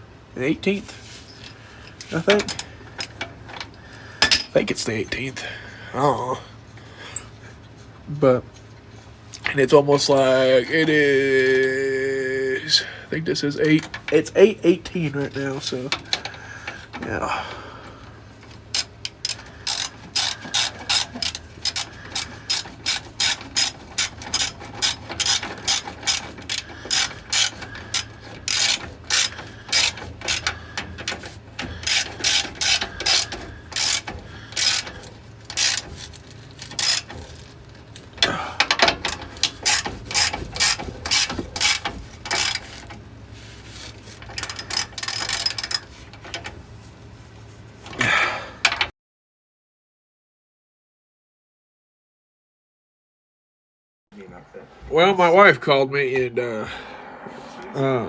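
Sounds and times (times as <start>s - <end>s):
ratchet wrench clicking: 18.5s - 37.5s, 38.2s - 42.9s, 43.8s - 46.5s.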